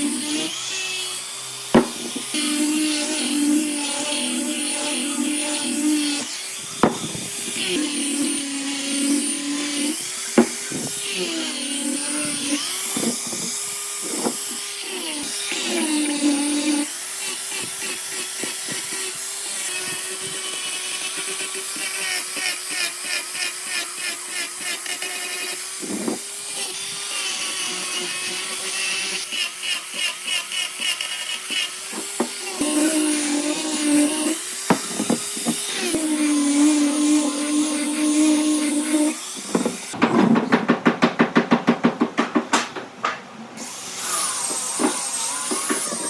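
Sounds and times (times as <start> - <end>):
electric power tool motor running: 0.0 - 22.2, 30.9 - 40.0.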